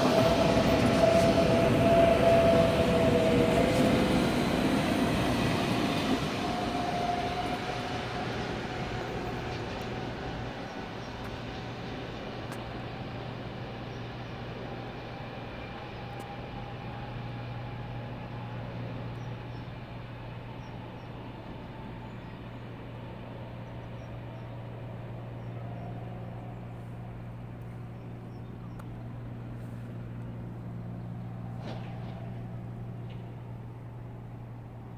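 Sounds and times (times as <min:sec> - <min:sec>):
electric train pulling off: 0:00.0 - 0:23.4.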